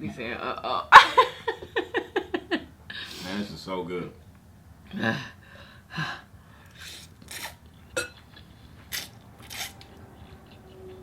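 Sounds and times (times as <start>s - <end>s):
slurping noodles: 6.7s - 7.7s, 8.4s - 10.7s.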